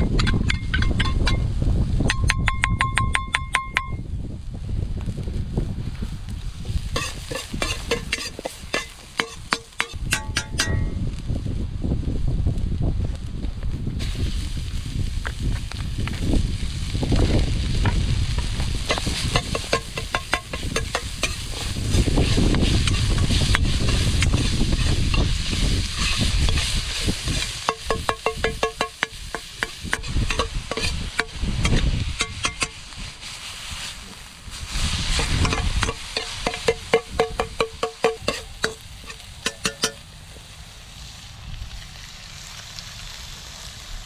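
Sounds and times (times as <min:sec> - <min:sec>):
food sizzling in wok: 0:05.0 - 0:11.2, 0:13.9 - 0:44.0
metal ladle clinking on wok: 0:07.0 - 0:10.9, 0:27.7 - 0:31.3, 0:35.4 - 0:40.0.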